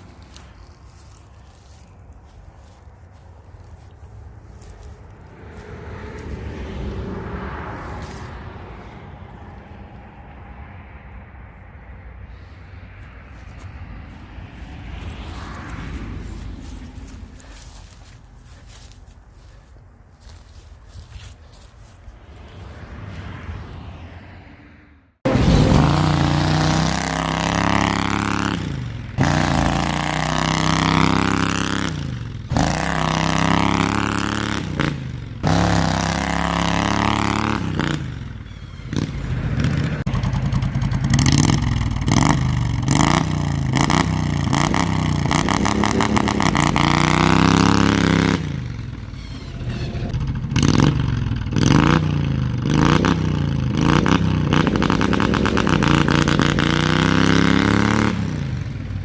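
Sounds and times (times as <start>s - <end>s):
mower engine revving: 25.2s - 59.0s.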